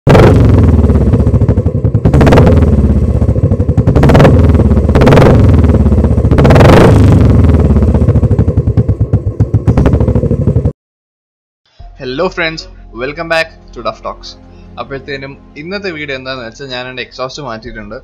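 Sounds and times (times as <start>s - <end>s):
motorcycle engine idling: 0.3s - 10.7s.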